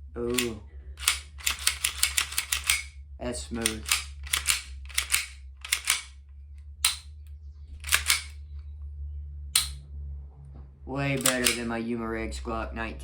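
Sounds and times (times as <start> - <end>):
pistol slide racking clicks: 0.3 - 2.9, 3.6 - 6.2, 6.8 - 7.1, 7.8 - 8.4, 9.6 - 9.8, 11.2 - 11.7.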